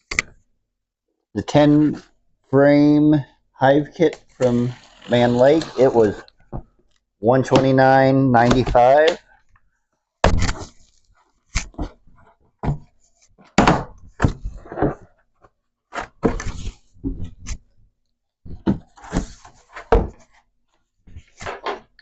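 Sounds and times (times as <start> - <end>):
cardboard scraping and rustling: 4.2 - 6.2
knocks and thuds of wooden parts: 12.6 - 12.9, 13.5 - 15.1, 18.5 - 20.3.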